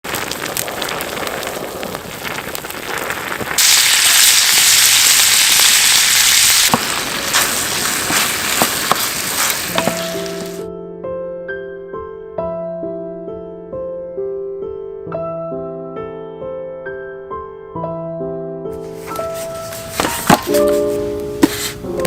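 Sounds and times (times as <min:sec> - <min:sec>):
food sizzling in a pan: 0:00.0 - 0:10.6
soft piano music: 0:09.6 - 0:22.0.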